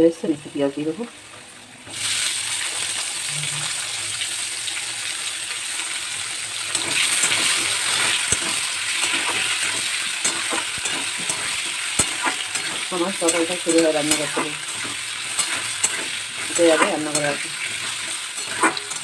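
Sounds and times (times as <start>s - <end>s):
potatoes sizzling in hot oil: 0.0s - 19.0s
spatula knocking against pan: 7.1s - 19.0s.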